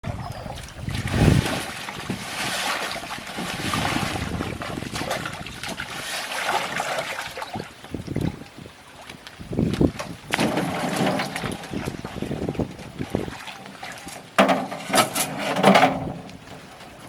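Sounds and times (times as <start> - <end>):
water splashing around boat: 0.0 - 17.0.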